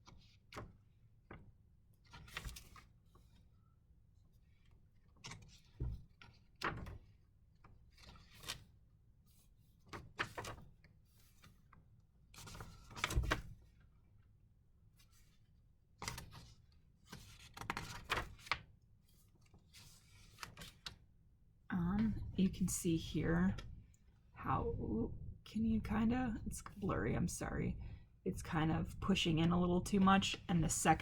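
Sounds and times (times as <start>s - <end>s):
paper pages rustling: 16.1s - 21.0s.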